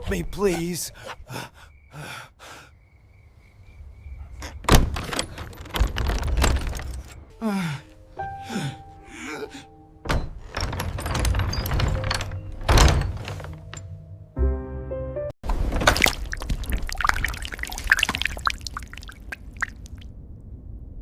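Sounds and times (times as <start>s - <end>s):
tense background music: 7.1s - 15.2s.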